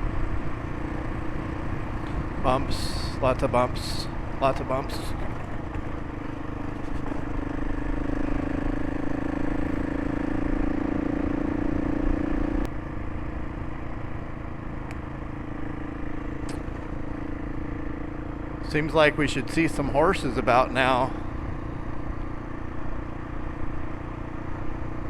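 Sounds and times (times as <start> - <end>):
low rumbling noise: 0.0 - 12.3
motorcycle engine running: 0.0 - 25.0.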